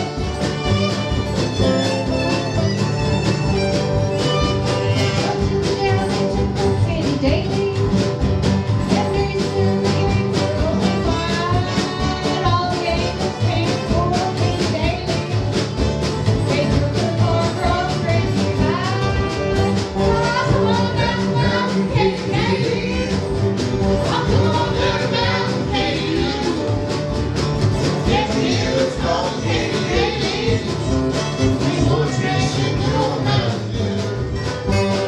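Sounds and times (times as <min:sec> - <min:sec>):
bluegrass band playing: 0:00.0 - 0:35.0
person singing: 0:08.9 - 0:15.6, 0:16.4 - 0:23.4, 0:24.0 - 0:26.9, 0:28.0 - 0:34.2.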